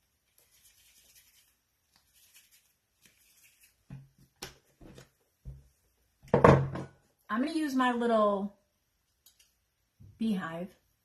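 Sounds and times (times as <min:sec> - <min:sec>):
hands rustling craft materials: 0:00.1 - 0:05.6.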